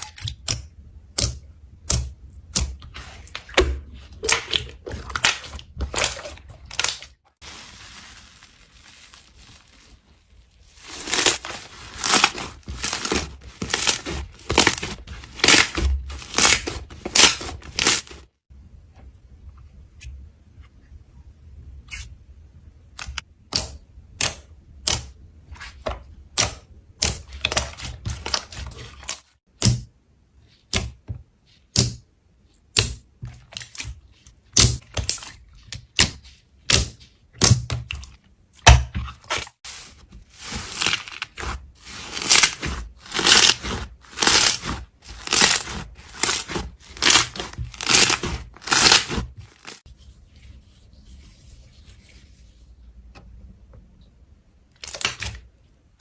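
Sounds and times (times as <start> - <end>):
slime squelching: 0.0 - 18.4, 23.0 - 52.8
slime popping and crackling: 40.4 - 49.8.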